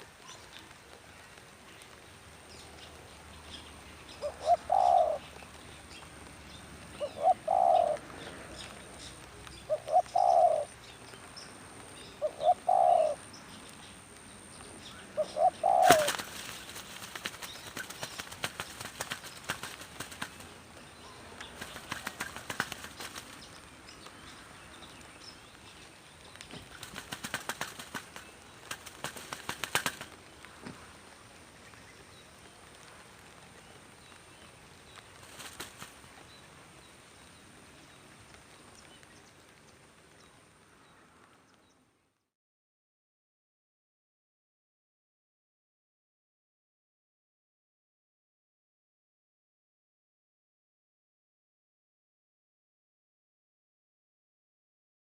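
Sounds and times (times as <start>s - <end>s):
dove cooing: 4.2s - 5.3s, 7.0s - 8.0s, 9.6s - 10.8s, 12.2s - 13.2s, 15.1s - 16.5s
wings flapping and rustling: 15.3s - 20.7s, 21.4s - 24.1s, 26.3s - 30.9s, 34.8s - 36.2s.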